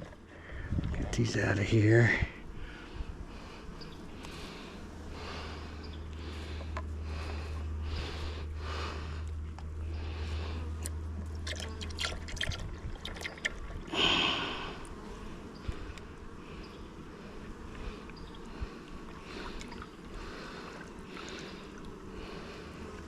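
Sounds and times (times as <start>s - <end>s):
low steady hum: 0.0s - 23.0s
clicks and scrapes of beehive parts: 4.1s - 4.6s, 6.1s - 7.4s, 9.2s - 9.8s, 10.6s - 12.2s.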